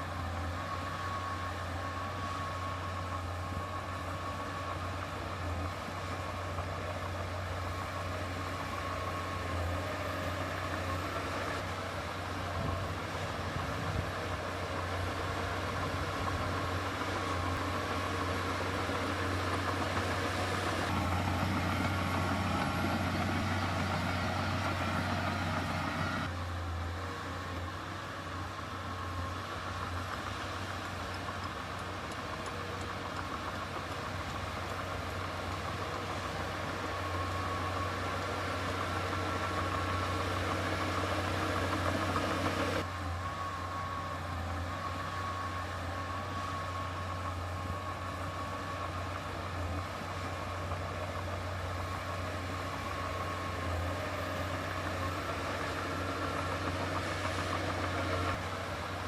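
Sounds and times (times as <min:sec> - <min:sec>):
diesel engine droning: 0:00.0 - 0:59.0
faint engine whine: 0:00.0 - 0:59.0.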